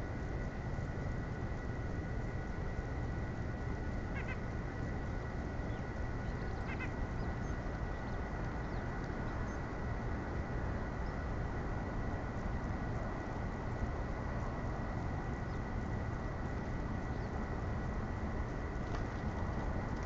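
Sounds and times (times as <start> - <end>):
short bird calls: 4.1 - 4.5, 6.3 - 7.6.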